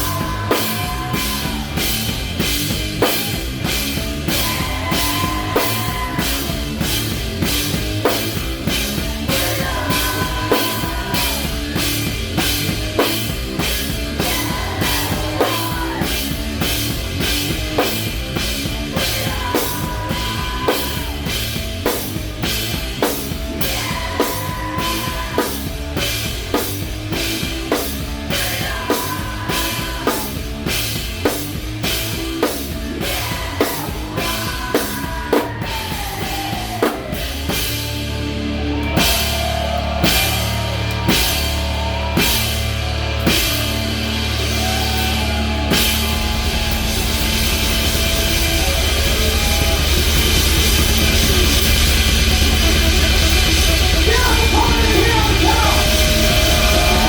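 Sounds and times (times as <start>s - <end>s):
bass guitar: 0.0s - 57.0s
drum kit beat: 0.0s - 57.0s
electric guitar sliding in pitch: 37.8s - 57.0s.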